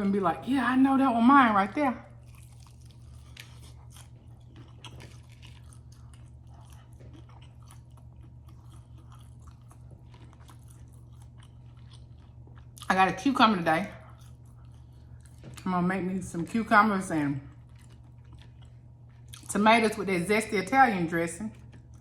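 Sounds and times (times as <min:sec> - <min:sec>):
low steady hum: 0:00.0 - 0:22.0
person chewing crispy food: 0:02.1 - 0:13.0, 0:14.0 - 0:15.7, 0:17.4 - 0:19.6, 0:21.5 - 0:22.0.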